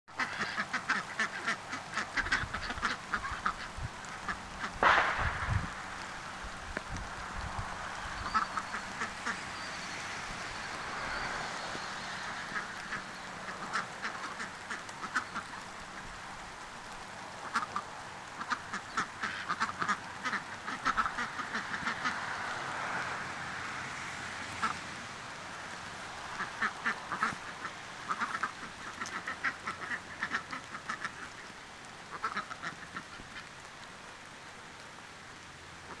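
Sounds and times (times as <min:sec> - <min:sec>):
ducks quacking: 0:00.1 - 0:07.0, 0:07.8 - 0:16.2, 0:17.4 - 0:23.0, 0:25.9 - 0:33.6
steady background hiss: 0:00.1 - 0:36.0.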